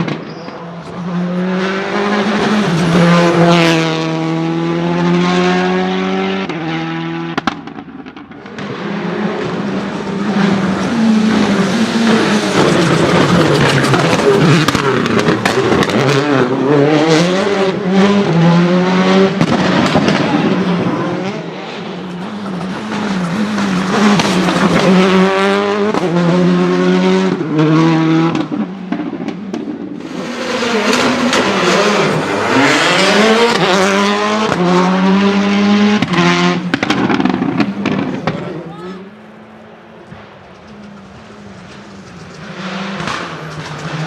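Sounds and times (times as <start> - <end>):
rally car engine revving: 0.0 - 44.0
exhaust pops and crackles: 7.3 - 9.6, 12.1 - 16.6, 19.3 - 20.6, 22.2 - 26.1, 28.3 - 30.1, 36.0 - 38.6, 40.0 - 44.0.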